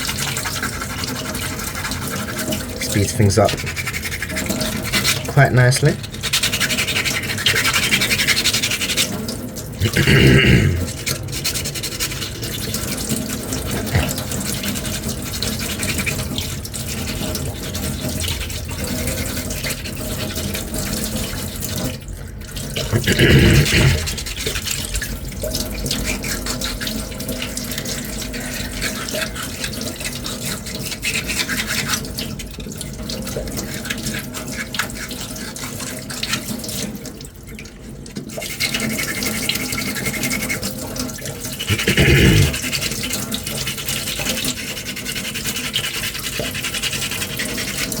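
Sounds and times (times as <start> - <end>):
sandpaper scrubbing: 0.0 - 5.3, 6.0 - 9.2, 11.3 - 12.4, 42.6 - 48.0.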